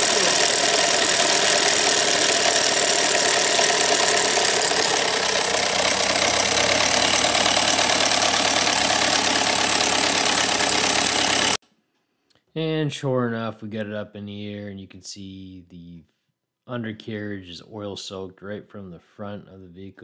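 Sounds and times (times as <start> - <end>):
car engine idling: 0.0 - 11.6
timing chain slap: 0.0 - 11.6.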